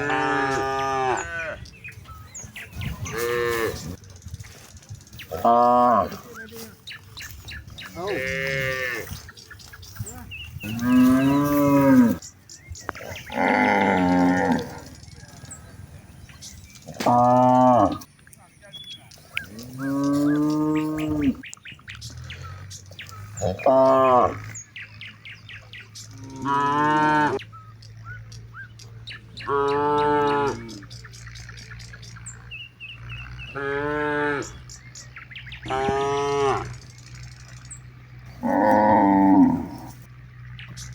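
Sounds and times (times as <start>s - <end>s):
cattle mooing: 0.0s - 1.7s, 2.7s - 4.0s, 5.3s - 6.4s, 7.8s - 9.3s, 10.0s - 12.2s, 12.9s - 15.2s, 16.8s - 18.1s, 19.4s - 24.7s, 26.1s - 27.4s, 29.4s - 31.0s, 33.0s - 34.7s, 35.6s - 36.8s, 38.2s - 40.1s.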